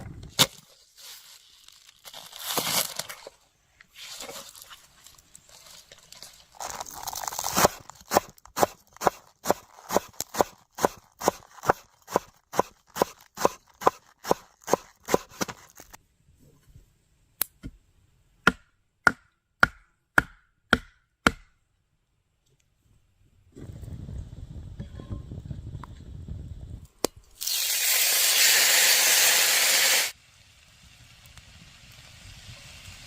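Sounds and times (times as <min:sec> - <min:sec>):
knife chopping food: 0:07.6 - 0:15.6.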